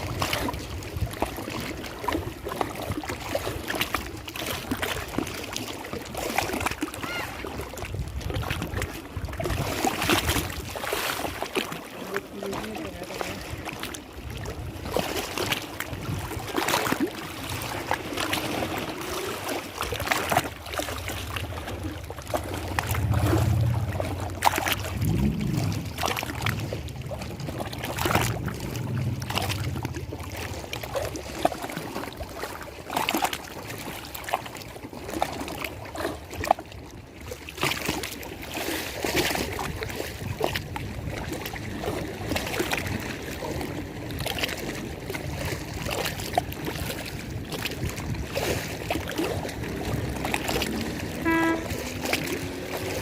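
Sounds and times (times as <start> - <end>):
water lapping and splashing: 0.0 - 53.0
low hum: 21.0 - 31.0.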